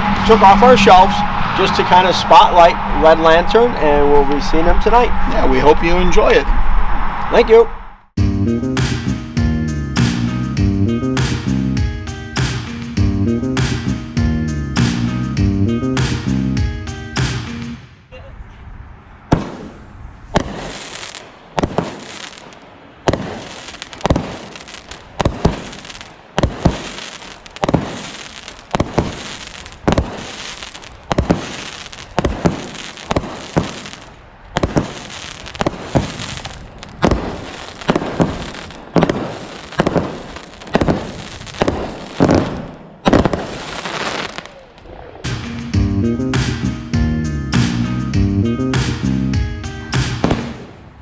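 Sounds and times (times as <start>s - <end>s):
fireworks crackling: 0.0s - 2.7s, 12.4s - 13.0s, 17.2s - 18.0s, 19.3s - 45.8s, 50.0s - 51.0s
fireworks shots bursting: 12.3s - 13.0s, 13.6s - 14.0s, 17.1s - 18.0s, 19.3s - 45.8s, 50.0s - 51.0s.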